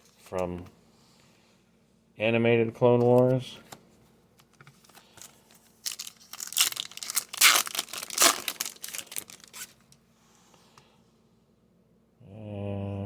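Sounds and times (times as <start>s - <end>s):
card pack wrapper crinkling: 4.8s - 10.0s.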